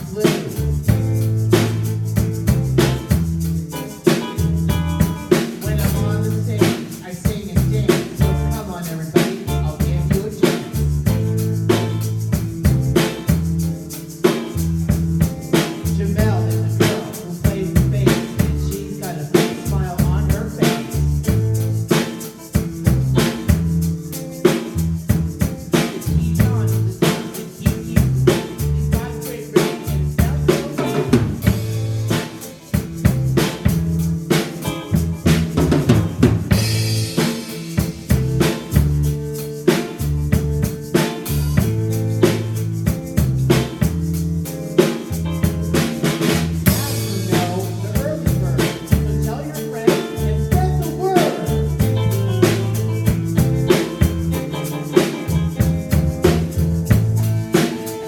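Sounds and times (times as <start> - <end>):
bass line: 0.0 - 57.6
live rock band playing: 0.0 - 58.0
snare and bass drum hits: 0.4 - 8.6, 29.8 - 44.1, 44.8 - 49.4, 50.2 - 58.0.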